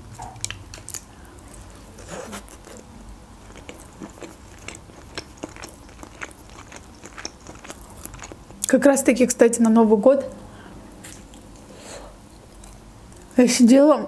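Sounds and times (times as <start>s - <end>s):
chewing with small crunches: 0.1s - 8.8s, 11.0s - 13.4s.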